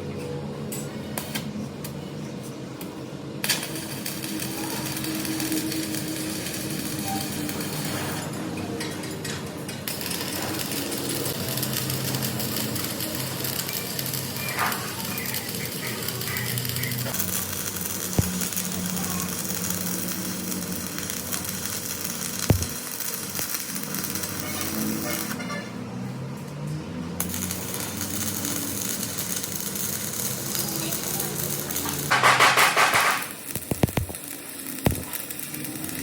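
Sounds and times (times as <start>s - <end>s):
workshop machinery humming: 0.0s - 36.0s.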